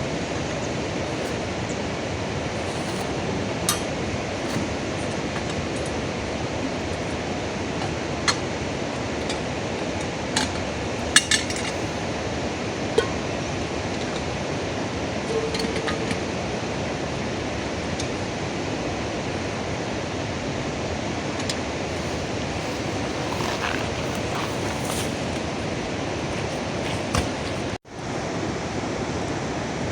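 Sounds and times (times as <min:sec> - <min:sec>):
rain hissing: 0:21.9 - 0:27.8.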